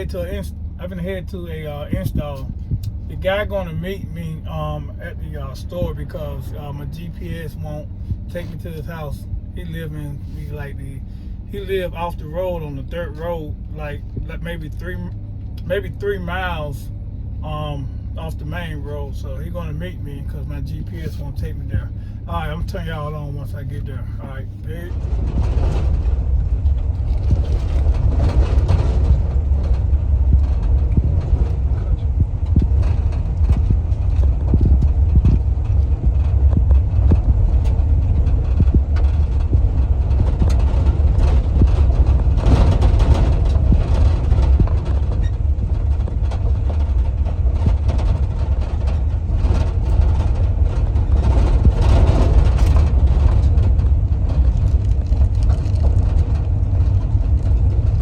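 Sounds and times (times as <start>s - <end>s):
vehicle road and engine rumble: 0.0s - 58.0s
small knocks and rattles: 24.8s - 58.0s.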